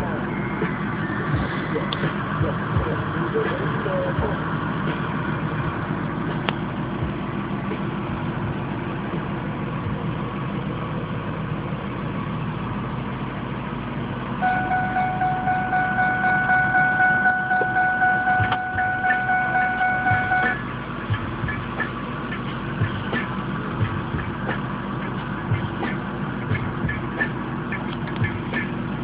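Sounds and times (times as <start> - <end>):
vehicle engine idling: 0.0 - 29.0
pulsing electronic warning chime: 14.4 - 20.7.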